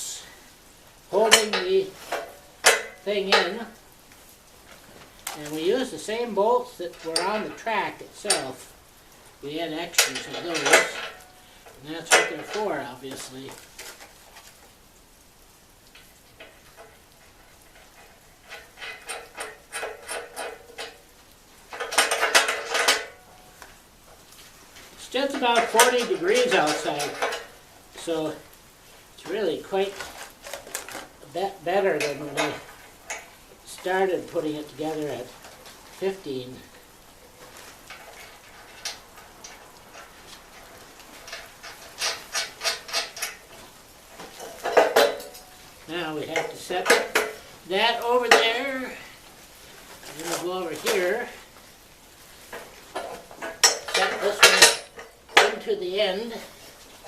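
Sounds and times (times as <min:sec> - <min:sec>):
metal parts clinking and rattling: 0:01.2 - 0:03.8, 0:09.6 - 0:14.6, 0:16.0 - 0:21.1, 0:21.7 - 0:23.7, 0:25.1 - 0:28.4, 0:29.2 - 0:49.0, 0:49.8 - 0:51.4, 0:52.4 - 0:56.7.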